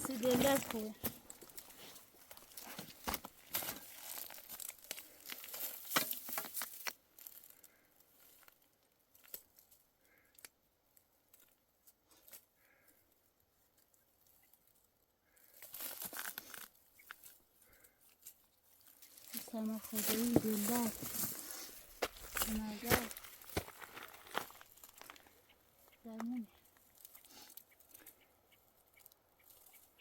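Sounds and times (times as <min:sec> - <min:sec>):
crackling handling noise: 0:00.0 - 0:09.7.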